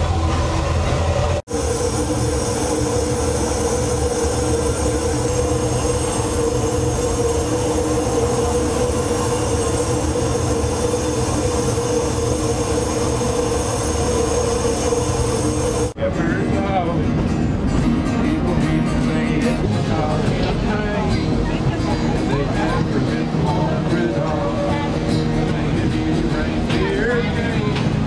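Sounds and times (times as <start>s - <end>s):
sustained train whine: 0.0s - 28.0s
train rumbling on track: 0.0s - 28.0s.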